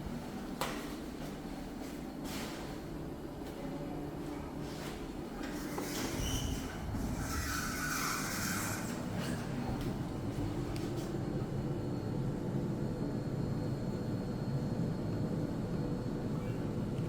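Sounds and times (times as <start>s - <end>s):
elevator rumble and air noise: 0.0s - 17.0s
faint high whine: 5.6s - 17.0s.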